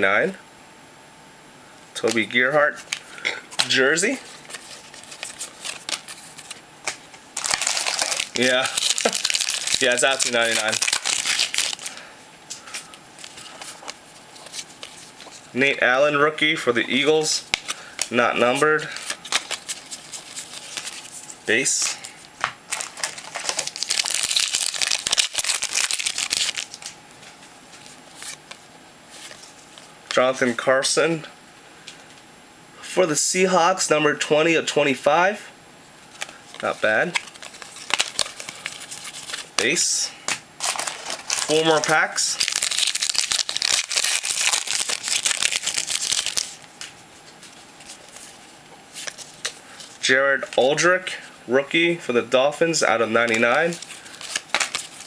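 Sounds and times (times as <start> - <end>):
foil wrapper crinkling and tearing: 2.8 - 12.0, 18.8 - 21.3, 22.7 - 27.0, 36.2 - 39.6, 40.6 - 46.8, 53.2 - 55.0.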